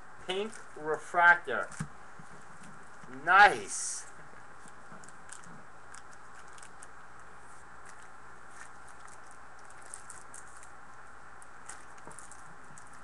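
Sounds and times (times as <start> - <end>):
background hiss: 0.0 - 13.0
trading cards rustling: 7.8 - 10.8, 11.6 - 13.0.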